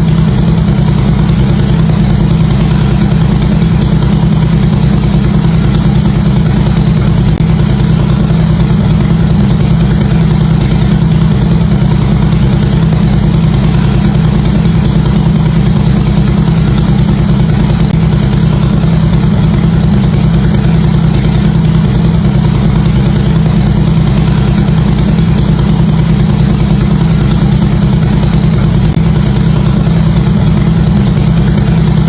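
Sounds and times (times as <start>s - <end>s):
motorcycle engine idling: 0.0s - 32.0s.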